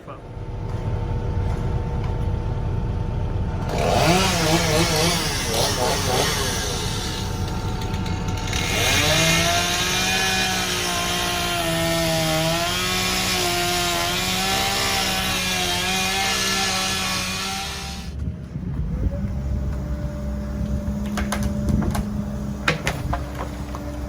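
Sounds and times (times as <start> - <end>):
chainsaw cutting: 3.6 - 18.2.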